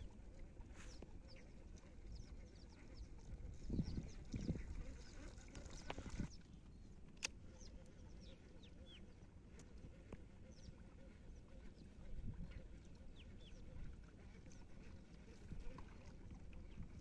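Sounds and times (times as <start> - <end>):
birds chirping: 0.0 - 14.7.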